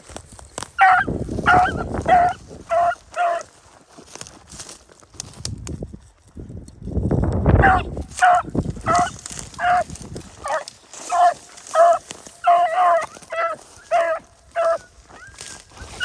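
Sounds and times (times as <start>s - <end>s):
wind rumbling on microphone: 0.0s - 3.2s, 4.4s - 11.0s, 13.7s - 16.0s
dog barking: 0.8s - 3.5s, 7.6s - 15.3s.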